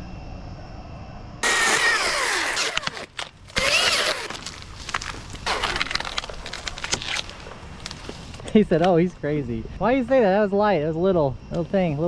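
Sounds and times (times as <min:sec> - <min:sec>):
chainsaw revving: 0:01.4 - 0:04.6.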